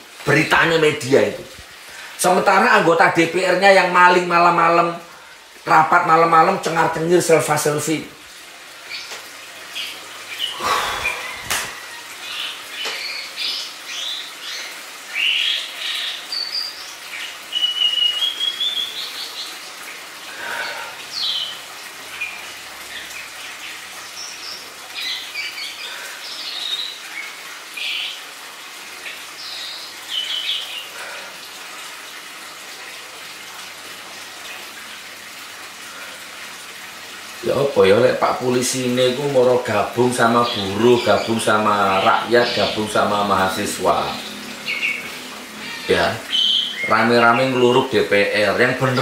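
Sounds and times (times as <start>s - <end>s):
birds chirping and whistling: 9.8s - 19.5s, 40.4s - 47.8s.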